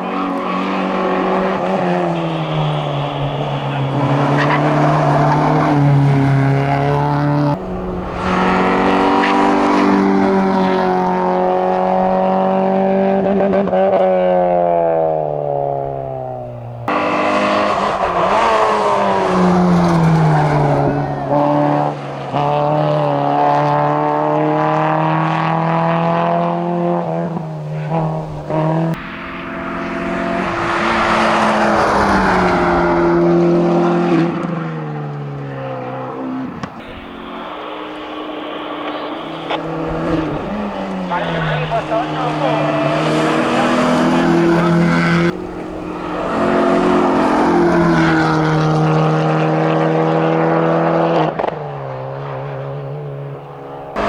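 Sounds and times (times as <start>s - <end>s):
race car engine at full throttle: 0.0s - 54.0s
second race car engine rising: 0.0s - 54.0s.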